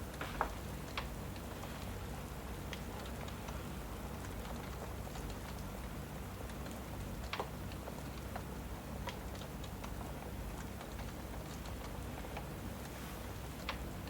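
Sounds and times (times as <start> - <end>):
fireplace crackling and popping: 0.0 - 14.0
steady rain: 0.0 - 14.0.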